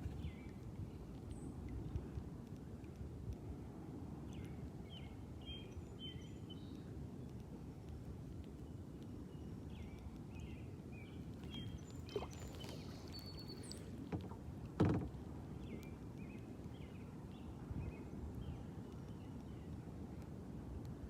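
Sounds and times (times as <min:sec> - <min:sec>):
birds chirping: 0:09.7 - 0:14.0
paddle knocking against kayak: 0:14.0 - 0:15.2.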